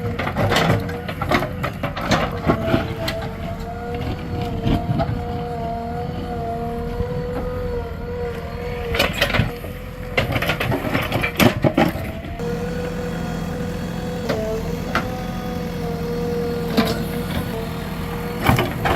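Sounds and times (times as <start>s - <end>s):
diesel engine running under load: 0.0s - 18.9s
steady whine: 12.0s - 18.9s.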